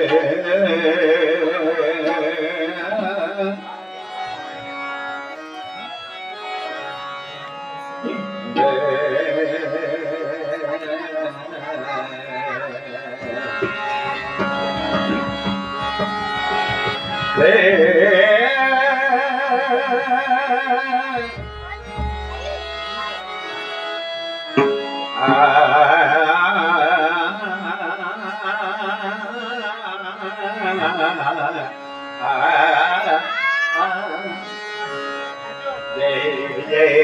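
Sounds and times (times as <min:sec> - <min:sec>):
person singing long wavering notes: 0:00.0 - 0:03.8, 0:08.0 - 0:22.6, 0:24.4 - 0:37.0
steady drone: 0:06.6 - 0:28.1
hand drum strokes: 0:13.4 - 0:18.1, 0:21.2 - 0:22.9, 0:24.6 - 0:25.6.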